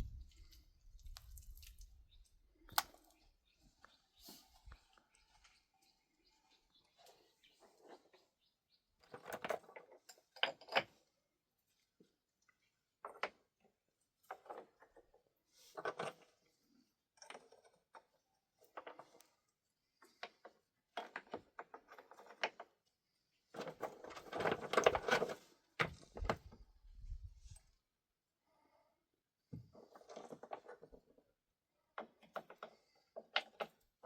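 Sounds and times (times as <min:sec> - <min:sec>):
objects knocking and scraping: 0:23.6 - 0:27.6, 0:29.5 - 0:31.2.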